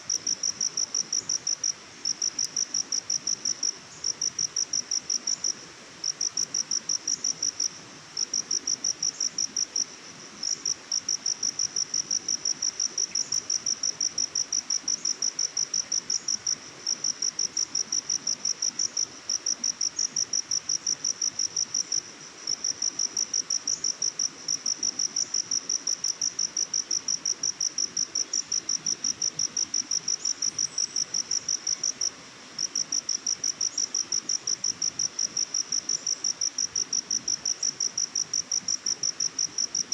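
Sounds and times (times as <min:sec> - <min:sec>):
faint background hiss: 0:00.0 - 0:39.9
insect chirping trill: 0:00.1 - 0:39.9.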